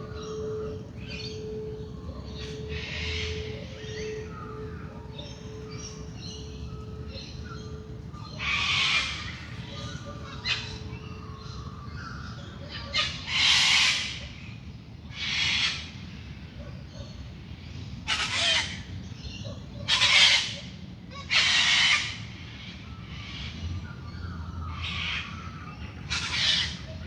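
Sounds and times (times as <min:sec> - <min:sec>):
harsh rasping bird calls: 0:00.0 - 0:14.2, 0:24.7 - 0:27.0
dawn chorus of birds: 0:00.0 - 0:27.0.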